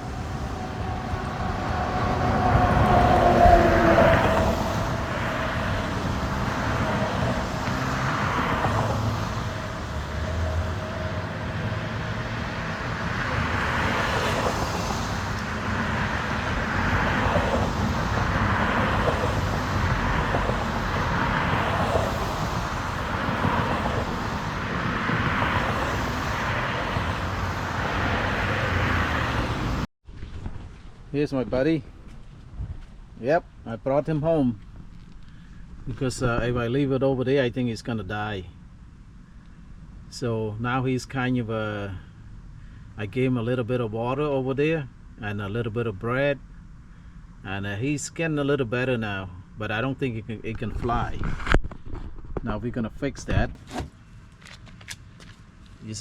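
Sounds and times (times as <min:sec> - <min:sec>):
wind rumble: 0:00.0 - 0:36.8, 0:50.1 - 0:53.6
road noise: 0:00.0 - 0:56.0.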